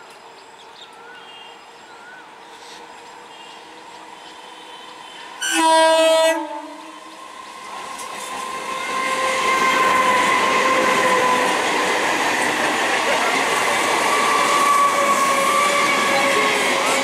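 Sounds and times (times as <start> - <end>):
electric train whine: 0.0 - 17.0
train wheel and rail rumble: 0.0 - 17.0
train horn blast: 3.2 - 7.1.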